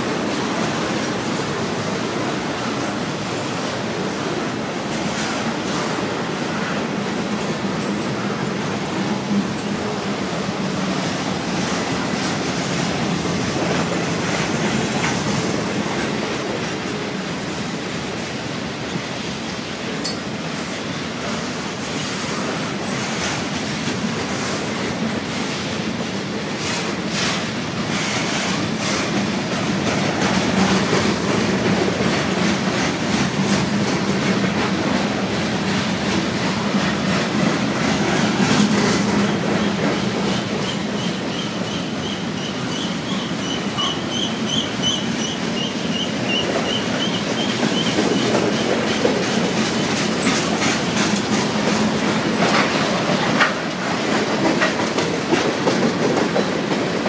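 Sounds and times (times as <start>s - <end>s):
wheels clacking over rail joints: 22.4s - 57.0s.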